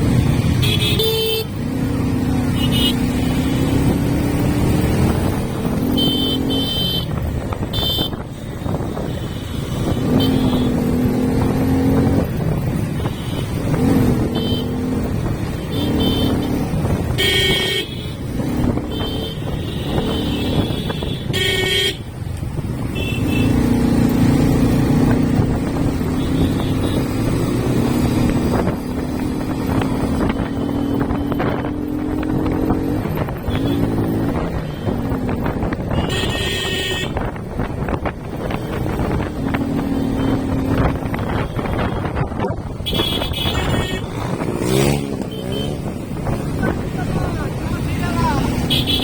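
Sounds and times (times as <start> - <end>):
motorcycle engine revving: 0.0 - 49.0
vehicle horn toots: 0.6 - 1.5, 2.6 - 3.0, 5.9 - 8.2, 15.7 - 16.5, 17.1 - 18.2, 18.9 - 22.1, 22.9 - 23.6, 35.9 - 37.3, 42.8 - 45.8, 48.6 - 49.0.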